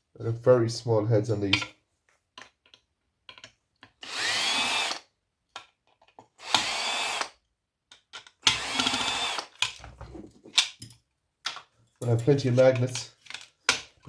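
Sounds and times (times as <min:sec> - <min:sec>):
small clicks of parts: 0:02.4 - 0:04.0, 0:07.9 - 0:09.8, 0:10.6 - 0:13.9
cordless drill whining: 0:04.0 - 0:05.1, 0:06.4 - 0:07.4, 0:08.4 - 0:09.5.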